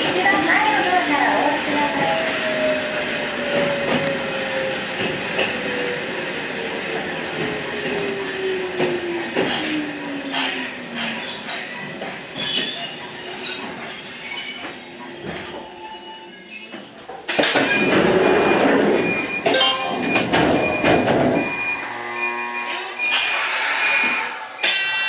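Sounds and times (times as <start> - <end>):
electric train running on rails: 0.0 - 25.0
wheel squeal: 11.2 - 17.0.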